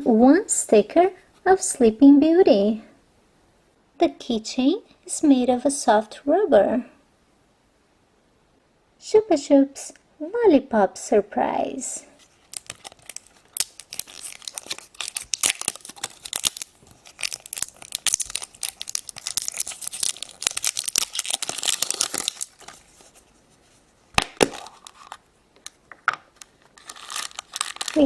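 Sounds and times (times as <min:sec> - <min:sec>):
wrapper crinkling: 0:12.2 - 0:28.0.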